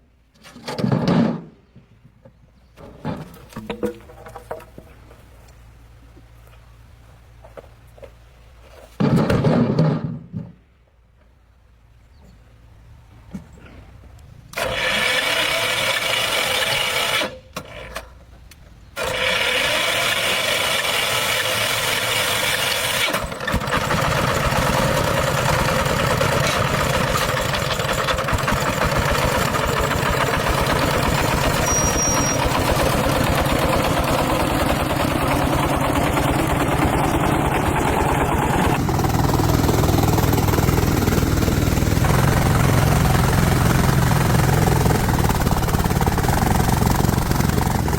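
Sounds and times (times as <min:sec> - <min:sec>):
engine cranking: 0:14.5 - 0:18.3, 0:19.0 - 0:47.9
engine running with low chug: 0:21.5 - 0:47.9.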